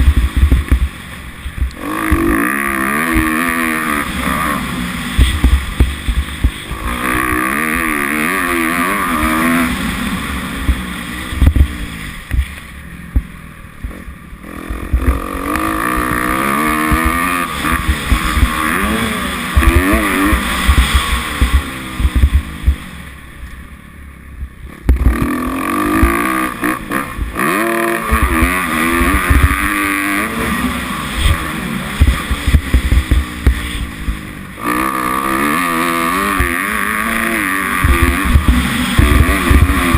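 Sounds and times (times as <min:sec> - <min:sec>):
thumps on microphone: 0:00.0 - 0:00.9, 0:05.2 - 0:06.6, 0:10.7 - 0:12.5, 0:20.7 - 0:22.8, 0:28.2 - 0:29.7, 0:32.0 - 0:34.2
motocross engine revving: 0:00.0 - 0:23.3, 0:24.6 - 0:39.9.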